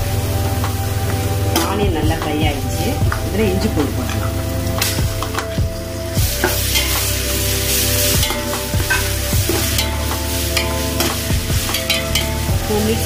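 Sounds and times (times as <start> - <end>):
onions sizzling in oil: 0.0 - 13.0
metal ladle scraping pot: 6.3 - 13.0.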